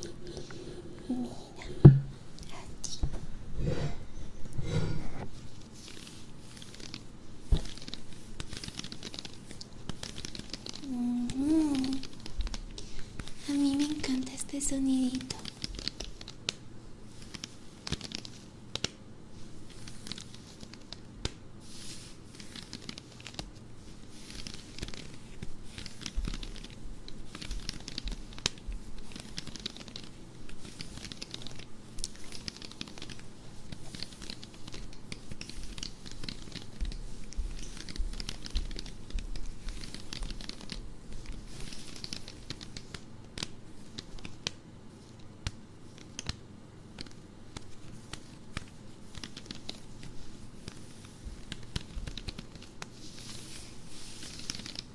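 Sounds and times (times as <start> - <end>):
soft handling bumps: 1.6 - 2.3
scratching on stocking fabric: 4.6 - 14.2, 19.4 - 54.9.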